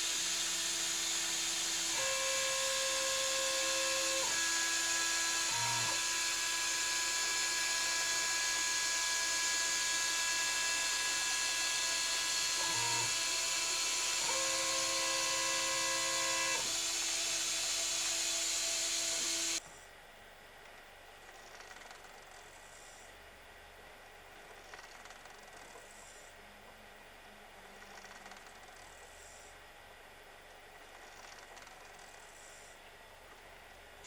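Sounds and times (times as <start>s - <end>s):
milling machine hiss: 0.0s - 19.6s
motor whines changing pitch: 0.0s - 19.6s.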